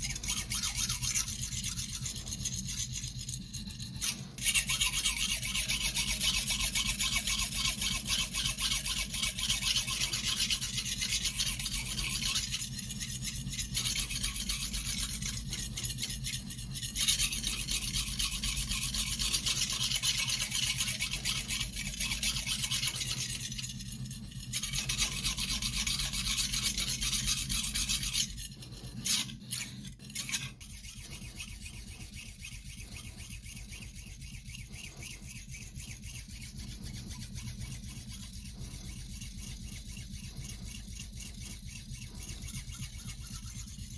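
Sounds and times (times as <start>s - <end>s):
knife scraping on whetstone: 0.0s - 43.9s.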